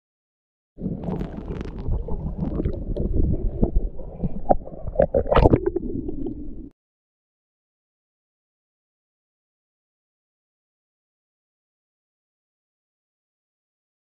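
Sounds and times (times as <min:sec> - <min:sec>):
clicks and pops: 0:00.8 - 0:06.4
muffled underwater rumbling: 0:00.8 - 0:06.7.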